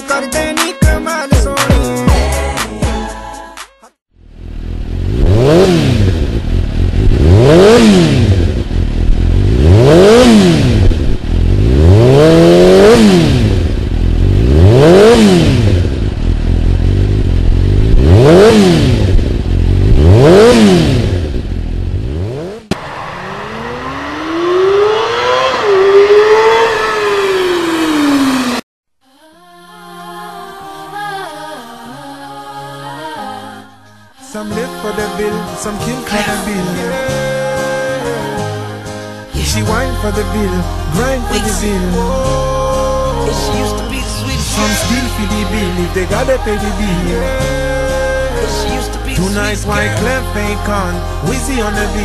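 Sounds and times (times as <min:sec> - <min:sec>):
motorcycle engine revving: 0:04.2 - 0:28.6, 0:39.4 - 0:52.0.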